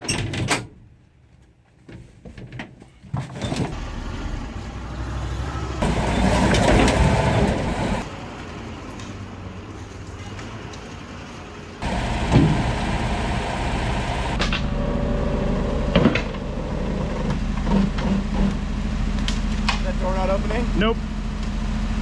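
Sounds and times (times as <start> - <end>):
vehicle engine running: 3.7 - 8.1, 11.8 - 22.0.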